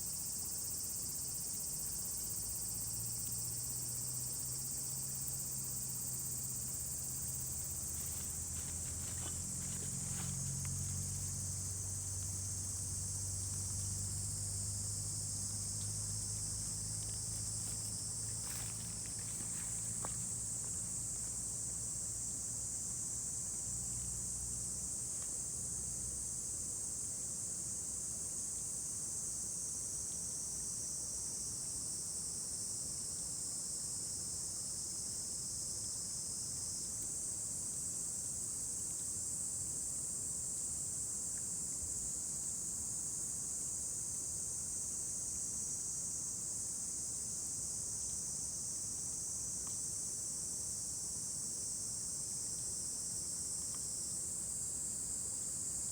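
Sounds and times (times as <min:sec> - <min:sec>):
insects chirring: 0:00.0 - 0:22.4.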